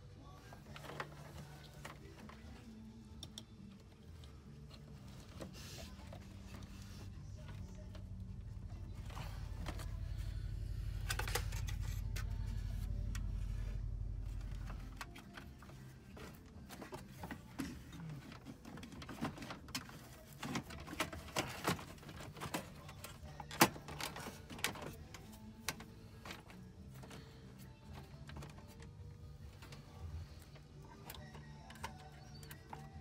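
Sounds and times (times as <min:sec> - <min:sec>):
steady low hum: 0:00.0 - 0:18.4
tools and parts clicking and knocking: 0:11.0 - 0:13.4.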